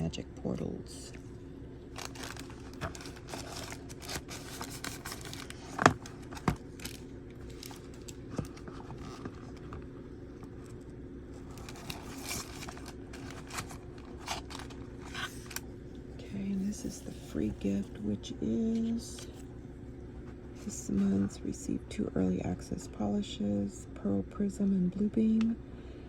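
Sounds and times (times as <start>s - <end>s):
packaging rustling and crinkling: 1.9s - 10.7s, 11.4s - 15.7s.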